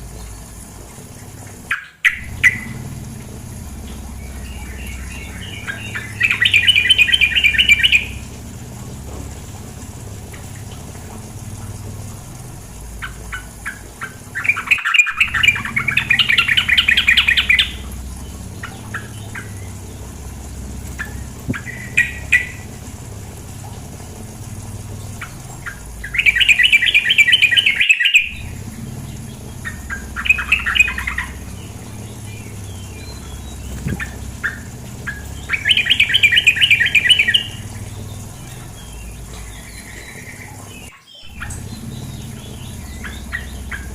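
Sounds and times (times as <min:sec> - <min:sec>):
bird chattering calls: 0:01.6 - 0:43.9.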